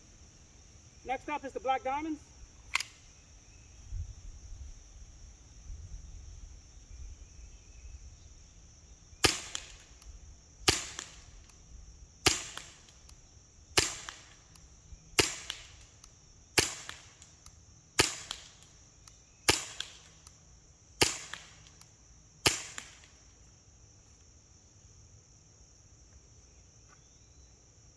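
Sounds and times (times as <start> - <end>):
pistol shots popping: 9.2 - 20.4, 21.0 - 23.2.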